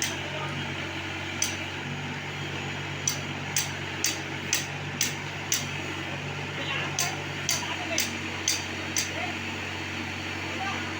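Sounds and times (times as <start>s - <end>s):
backhoe engine running: 0.0s - 10.9s
sharp repeating tick: 1.4s - 1.6s, 3.0s - 5.7s, 7.0s - 9.2s.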